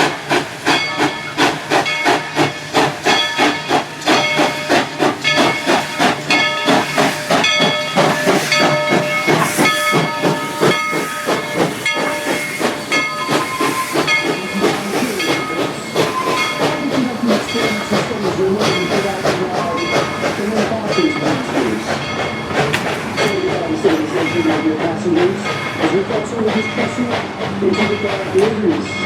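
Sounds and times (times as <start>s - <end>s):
hissing steam: 0.0s - 29.0s
steam locomotive exhaust chuffs: 0.0s - 29.0s.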